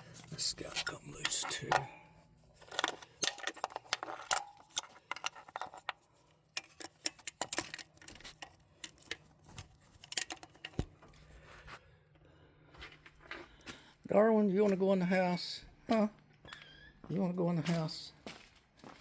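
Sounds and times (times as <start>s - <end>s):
metal tools clicking and clinking: 2.6s - 10.9s.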